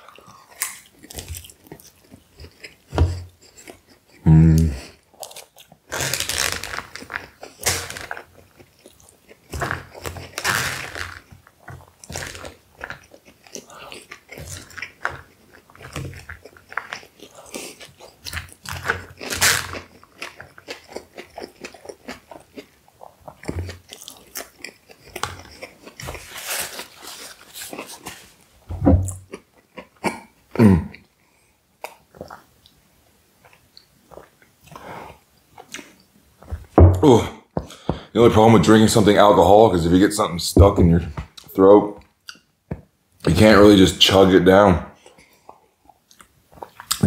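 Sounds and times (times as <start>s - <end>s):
close-up chewing and biting: 0.0s - 28.4s, 29.0s - 30.4s, 31.8s - 32.8s, 33.4s - 36.8s, 45.0s - 47.0s
wet mouth sounds and crunches: 0.1s - 28.3s, 45.0s - 47.0s.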